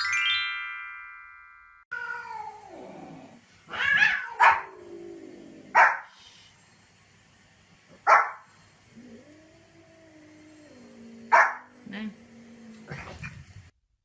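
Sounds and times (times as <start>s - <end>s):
bright chime ringing: 0.0s - 1.8s
dog barking: 4.0s - 4.7s, 5.7s - 6.1s, 8.0s - 8.4s, 11.3s - 11.7s.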